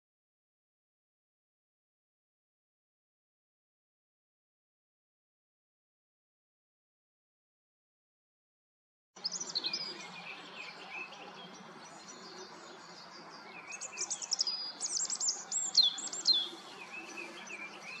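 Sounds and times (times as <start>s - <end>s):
songbirds singing: 9.2s - 18.0s.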